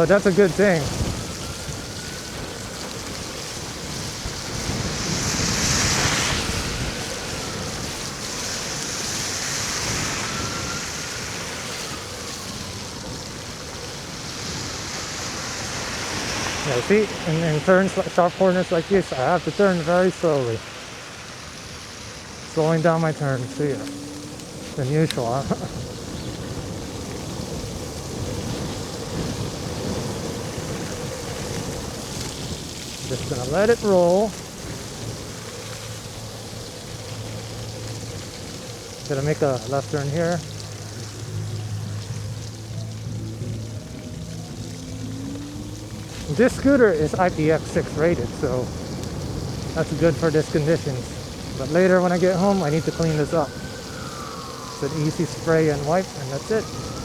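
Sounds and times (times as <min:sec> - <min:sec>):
tyres hissing on wet road: 0:00.0 - 0:57.0
wind on microphone: 0:00.0 - 0:57.0
faint motor whine: 0:20.7 - 0:57.0.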